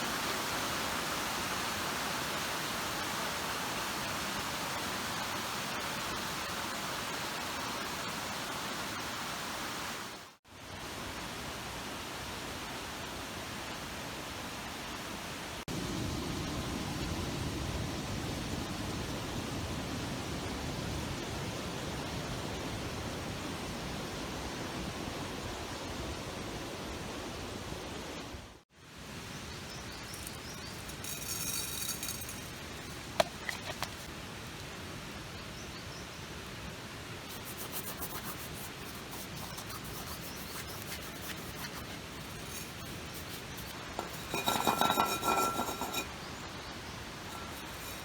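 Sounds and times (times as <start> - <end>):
outdoor noise haze: 23.4 - 48.0.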